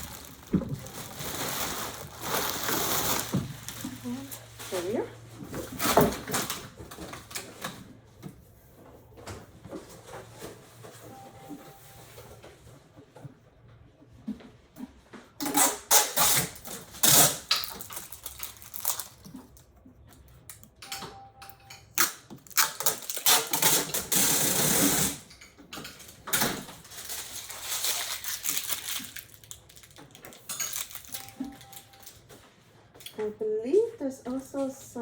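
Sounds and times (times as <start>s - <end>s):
packaging rustling and crinkling: 0.0s - 7.8s, 16.2s - 20.3s, 22.0s - 25.2s, 26.0s - 32.4s.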